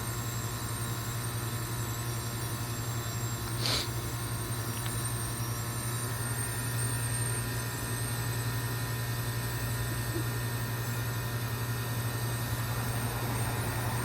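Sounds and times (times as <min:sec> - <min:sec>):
heat pump humming: 0:00.0 - 0:14.0
short hiss: 0:03.6 - 0:04.0.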